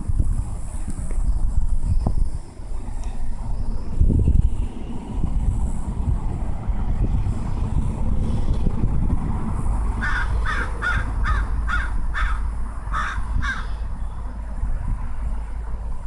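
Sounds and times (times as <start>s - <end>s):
steady low rumble: 0.0s - 16.0s
bird calling: 10.0s - 14.3s.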